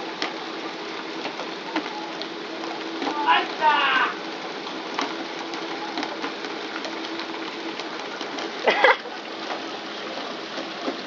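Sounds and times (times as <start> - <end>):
continuous hiss: 0.0 - 11.0
person shouting: 3.1 - 4.2.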